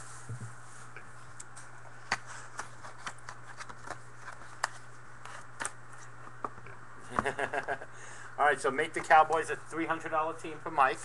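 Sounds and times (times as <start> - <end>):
steady low hum: 0.0 - 11.0
card packs clicking and crinkling: 2.0 - 6.1.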